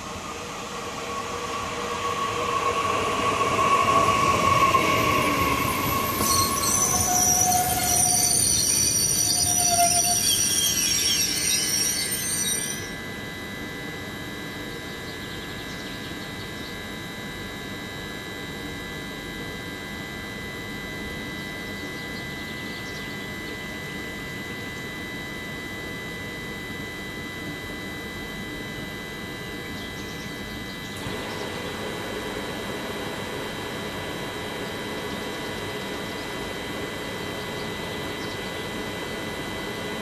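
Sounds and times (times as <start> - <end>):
train brake squeal: 0.0 - 13.1
steady high tones: 0.0 - 13.2
train equipment humming: 0.0 - 13.2.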